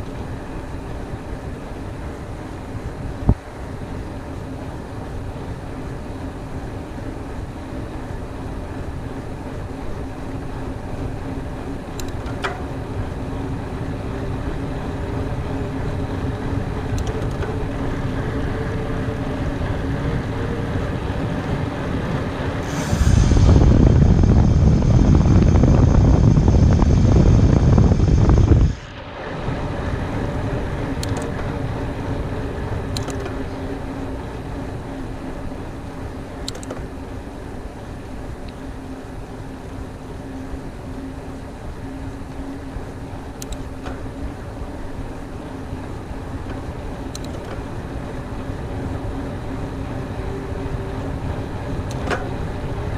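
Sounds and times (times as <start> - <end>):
bike tyre and drivetrain noise: 0.0 - 52.9
wind buffeting microphone: 0.0 - 52.9
sharp ticks from bike: 11.8 - 13.5, 16.8 - 20.1, 30.9 - 31.8, 32.8 - 34.1, 36.4 - 37.0, 41.9 - 44.6, 46.3 - 48.5.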